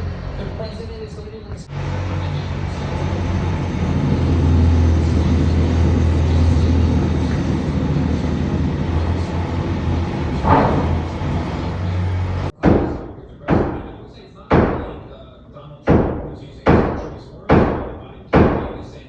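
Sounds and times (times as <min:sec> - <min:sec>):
construction machinery rumbling: 0:00.0 - 0:19.0
sharp bang: 0:10.4 - 0:11.8.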